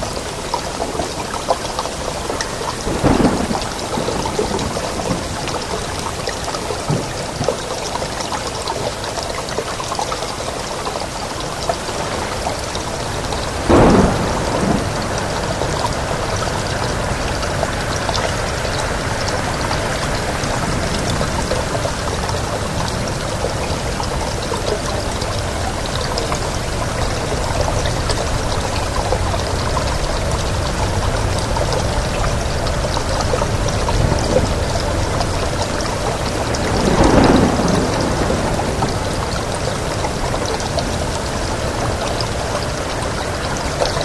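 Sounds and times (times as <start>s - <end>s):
steady rain hissing: 0.0s - 44.0s
thunder claps: 1.9s - 7.5s, 11.8s - 25.5s, 31.0s - 41.4s.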